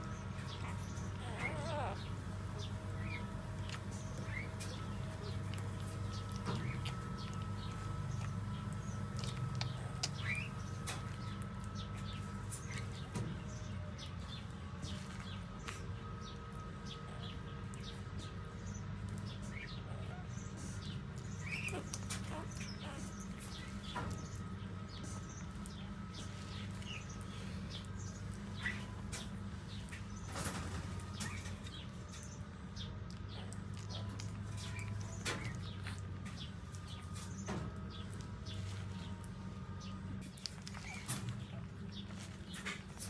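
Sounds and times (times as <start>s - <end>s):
puppies sucking: 0.0s - 30.3s, 31.1s - 43.0s
low hum: 0.0s - 43.0s
puppy squeaks: 0.6s - 2.1s, 21.4s - 23.5s, 40.6s - 41.3s.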